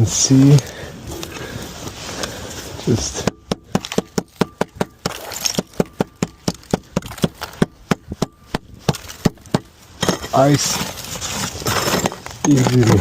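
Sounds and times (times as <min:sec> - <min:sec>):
hand tool chipping ice: 0:03.1 - 0:13.0.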